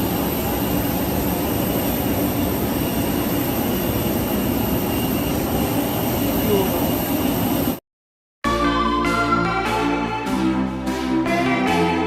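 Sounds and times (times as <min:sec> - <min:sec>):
jet engine hum in cabin: 0:00.0 - 0:07.8.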